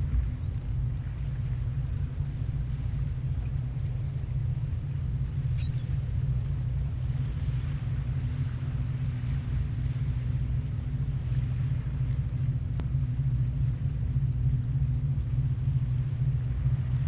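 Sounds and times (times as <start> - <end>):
surf rumbling: 0.0 - 17.0
faint click: 12.6 - 12.9.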